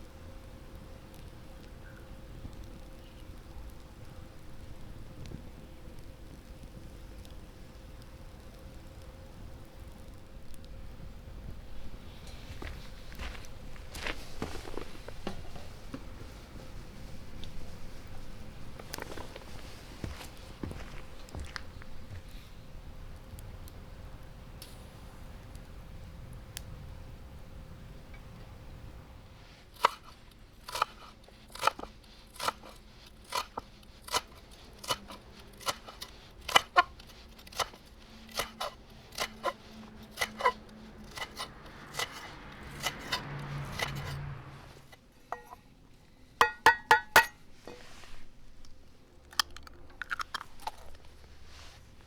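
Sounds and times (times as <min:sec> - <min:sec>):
eggs tapping against bowl: 0:46.4 - 0:47.4.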